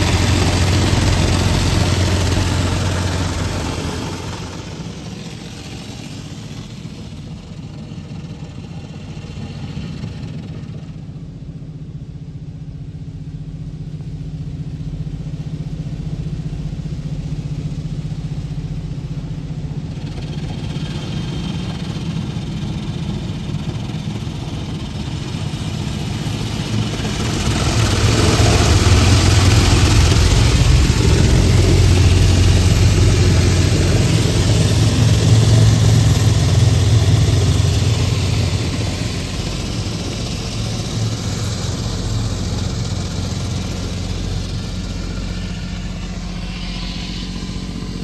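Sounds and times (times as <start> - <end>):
engine humming: 0.0 - 11.3, 12.8 - 48.0
rushing hiss: 20.4 - 48.0.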